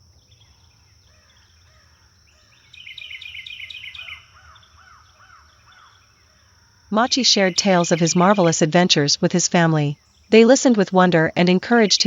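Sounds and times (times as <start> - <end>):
birds chirping: 0.0 - 12.0
whistled bird notes: 0.2 - 6.0.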